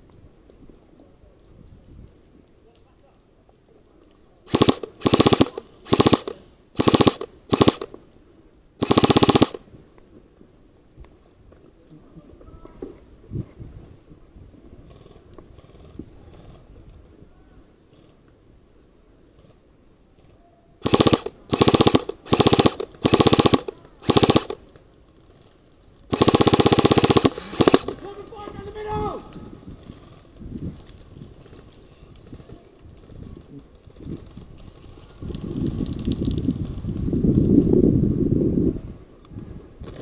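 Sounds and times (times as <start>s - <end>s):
airsoft gun firing bursts: 4.5s - 8.0s, 8.8s - 9.7s, 20.8s - 24.7s, 26.1s - 28.4s.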